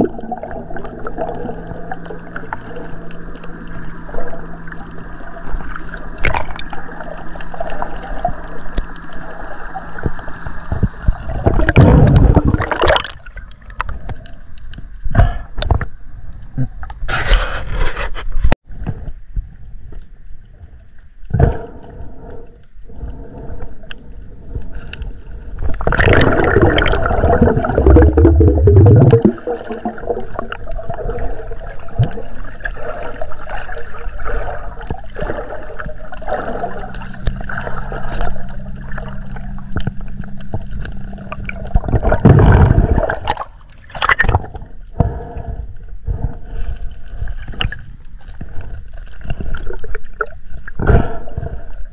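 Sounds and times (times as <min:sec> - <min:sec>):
water gurgling and splashing: 0:00.0 - 0:14.2, 0:25.5 - 0:45.3, 0:46.1 - 0:51.8
low steady hum: 0:00.0 - 0:51.9.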